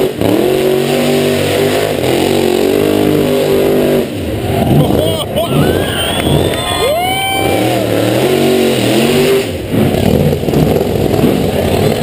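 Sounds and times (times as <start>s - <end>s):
drag car engine revving: 0.0s - 12.0s.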